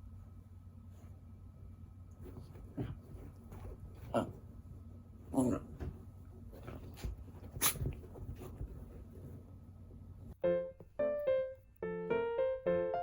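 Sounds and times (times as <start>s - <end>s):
dogs scuffling: 2.2s - 10.4s
piano tune: 10.4s - 13.0s.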